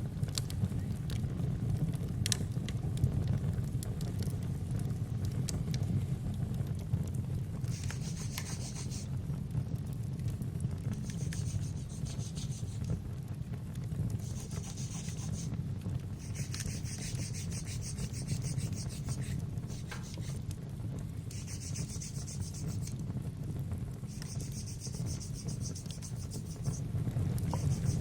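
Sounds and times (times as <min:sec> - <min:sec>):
fireplace rumble and crackles: 0:00.0 - 0:28.0
nail file rasping: 0:07.7 - 0:09.1, 0:10.9 - 0:12.9, 0:14.2 - 0:15.5, 0:16.2 - 0:20.4, 0:21.3 - 0:23.0, 0:24.1 - 0:26.8, 0:27.5 - 0:28.0.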